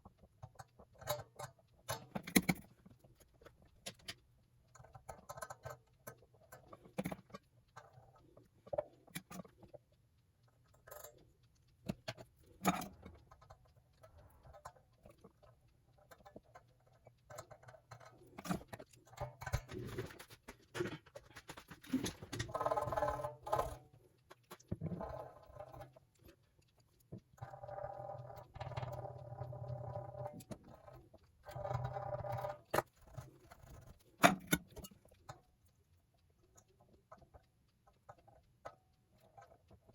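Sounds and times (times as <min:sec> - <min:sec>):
clicks and taps of tools: 0:00.0 - 0:09.6, 0:30.2 - 0:35.4.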